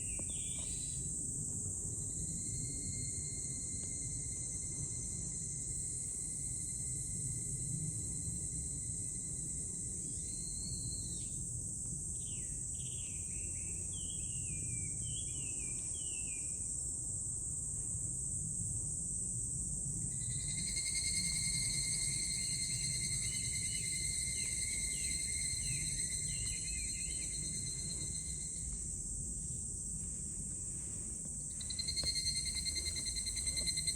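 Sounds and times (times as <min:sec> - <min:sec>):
long steady tone: 0:19.9 - 0:33.9
cicadas shrilling: 0:20.1 - 0:29.0, 0:31.5 - 0:33.9.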